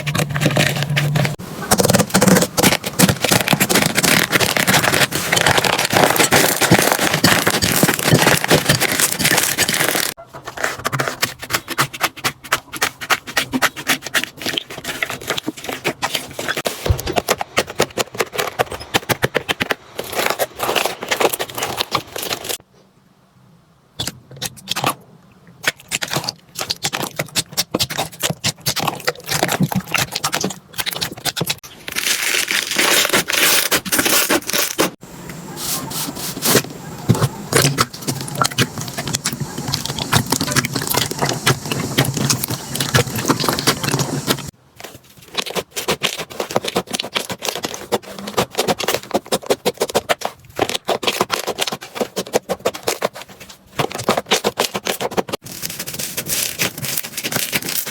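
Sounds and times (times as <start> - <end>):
slime crackling: 0.0 - 10.2, 36.4 - 44.5.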